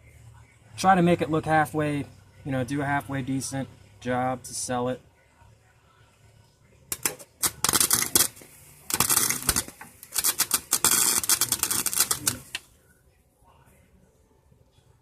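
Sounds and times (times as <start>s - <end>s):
welding arc crackling: 6.9s - 12.6s.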